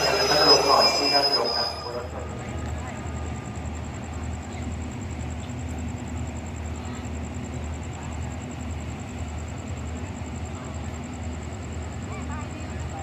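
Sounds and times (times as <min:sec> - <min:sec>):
train rumbling: 0:00.0 - 0:06.7.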